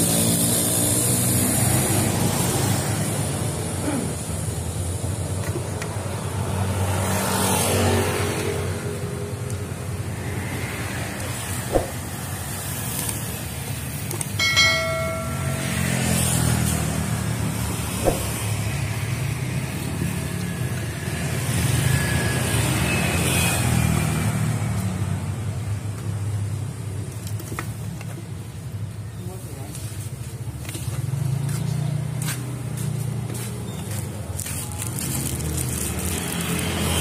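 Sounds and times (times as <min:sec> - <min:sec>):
vehicle engines passing: 0:00.0 - 0:37.0
sharp knocks: 0:18.0 - 0:18.4.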